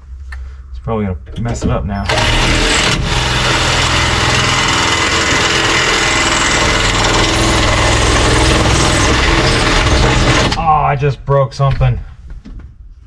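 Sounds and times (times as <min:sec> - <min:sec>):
power drill boring: 0:02.1 - 0:10.6.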